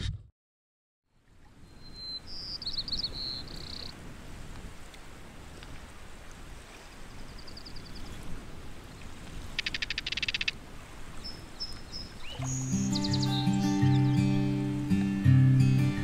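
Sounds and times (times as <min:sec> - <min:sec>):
guitar music: 0:12.5 - 0:16.0.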